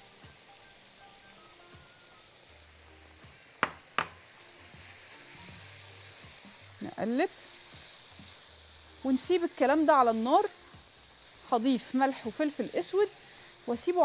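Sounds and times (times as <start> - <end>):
food sizzling in oil: 0.0 - 14.0
spatula knocking against pan: 3.6 - 4.2.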